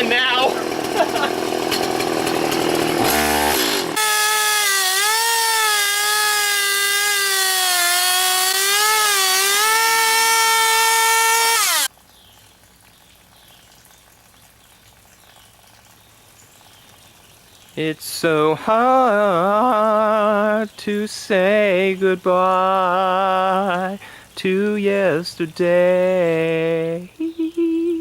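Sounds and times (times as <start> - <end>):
chainsaw cutting: 0.0 - 11.9.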